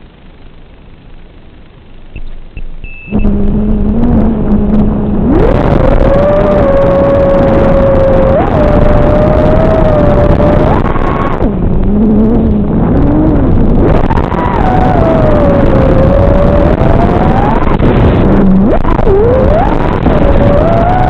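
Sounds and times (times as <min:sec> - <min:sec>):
short high beeps: 0:02.2 - 0:03.4
drone motors whining: 0:03.1 - 0:21.0.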